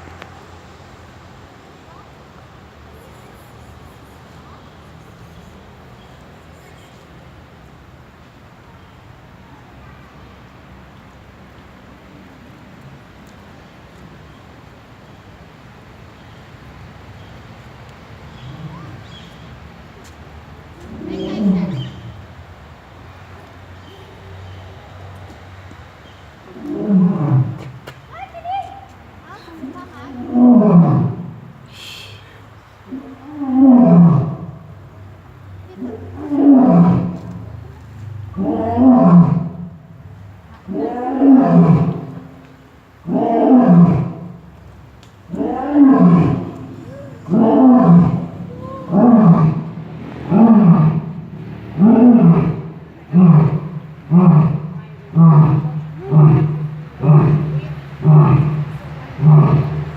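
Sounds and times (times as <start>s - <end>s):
animal low call: 20.8s - 22.3s, 45.3s - 59.9s
big cat roaring: 26.5s - 27.6s, 30.1s - 31.4s, 32.9s - 34.6s, 35.8s - 37.4s, 38.3s - 39.8s, 40.7s - 42.3s, 43.0s - 44.3s, 45.3s - 59.9s.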